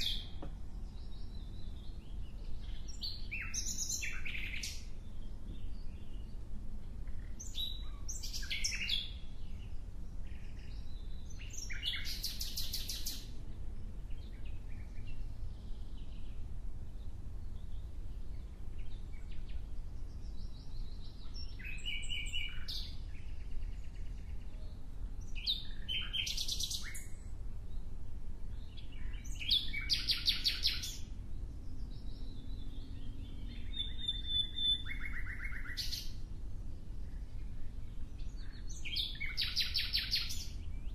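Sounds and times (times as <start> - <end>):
songbird chirps and trills: 0.0 - 40.9
steady low rumble: 27.0 - 39.6.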